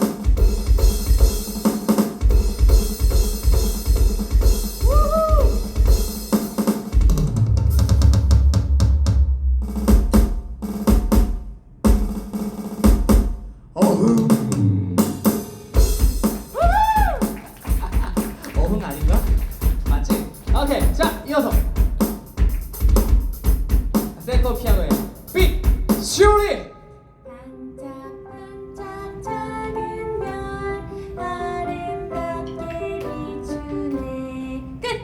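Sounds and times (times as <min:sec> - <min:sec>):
drum kit solo: 0:00.0 - 0:26.6
low drum tones sliding down: 0:07.0 - 0:12.2.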